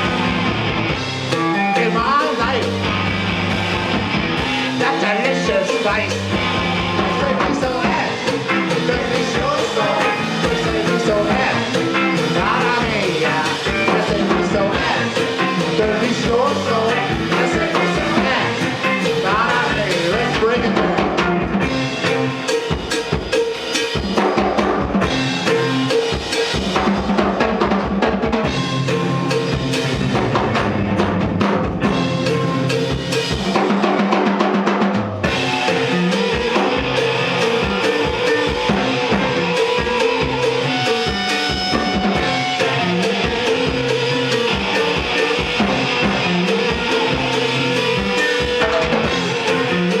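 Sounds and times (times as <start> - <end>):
live rock band playing: 0.0 - 50.0.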